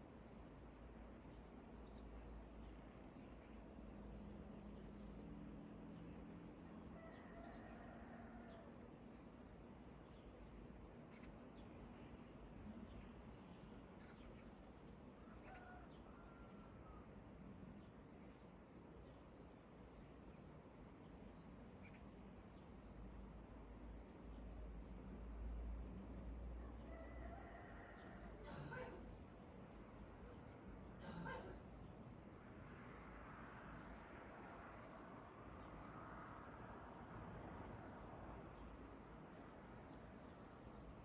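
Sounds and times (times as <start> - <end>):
high-pitched insect trill: 0.0 - 41.0
faint bird chirps: 11.1 - 17.0, 21.3 - 22.1, 26.9 - 31.9.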